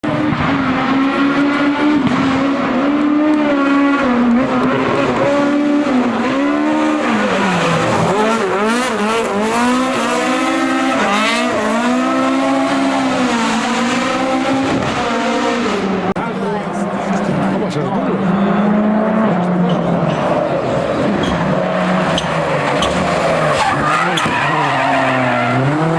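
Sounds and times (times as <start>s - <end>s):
racing car engine revving: 0.0s - 25.9s.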